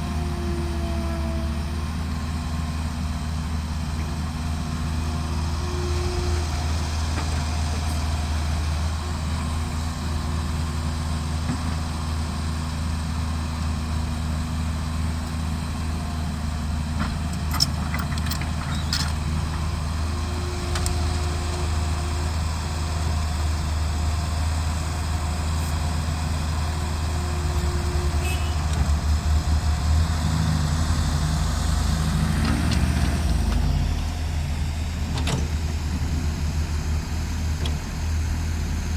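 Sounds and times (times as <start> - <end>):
diesel machinery engine humming: 0.0 - 38.9.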